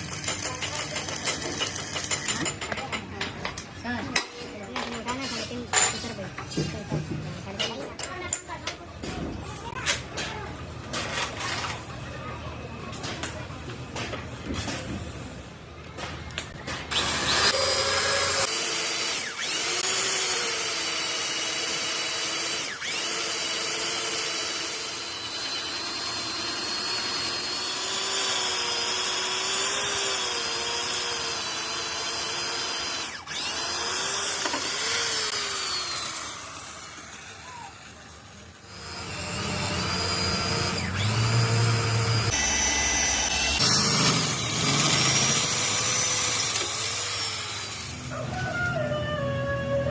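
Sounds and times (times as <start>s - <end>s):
power tool motor whining: 16.9s - 48.1s.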